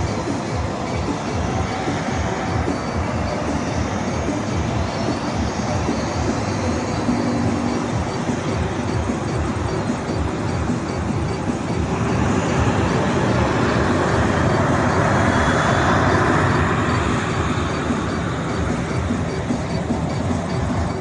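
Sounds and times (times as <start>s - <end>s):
jet airliner engines roaring: 0.0s - 21.0s.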